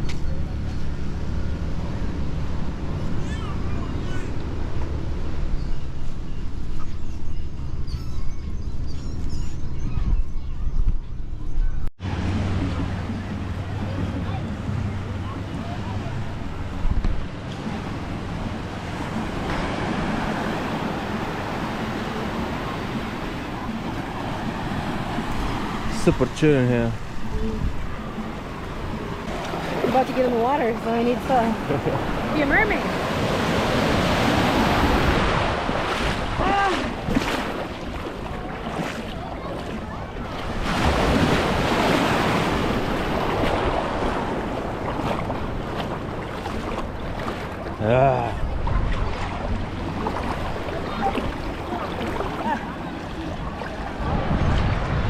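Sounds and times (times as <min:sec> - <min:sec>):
ocean surf washing on beach: 0:17.2 - 0:55.0
wind on microphone: 0:27.0 - 0:55.0.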